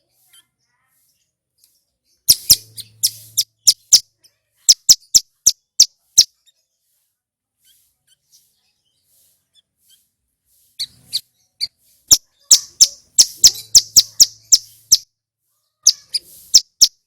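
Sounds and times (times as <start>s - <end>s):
bird singing high sharp notes: 2.2s - 4.1s, 12.1s - 15.1s, 15.9s - 17.0s.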